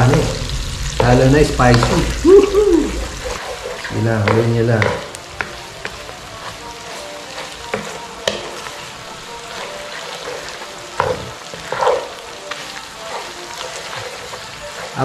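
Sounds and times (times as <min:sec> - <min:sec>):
meat sizzling in a frying pan: 0:00.0 - 0:15.0
spatula scraping a pan: 0:03.2 - 0:15.0.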